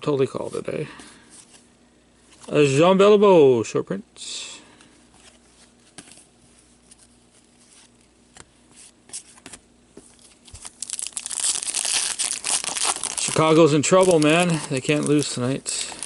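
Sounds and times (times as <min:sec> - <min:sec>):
wrapper tearing and crinkling: 0:10.4 - 0:16.0.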